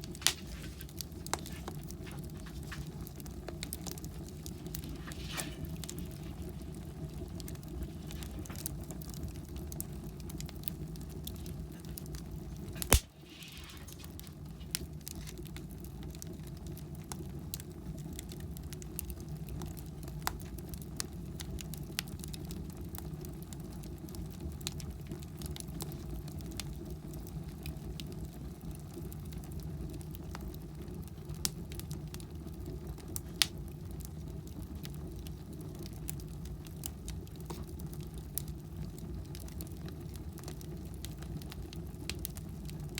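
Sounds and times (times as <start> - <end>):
wood fire crackling: 0.0 - 42.9
loud sharp pop: 12.8 - 13.5.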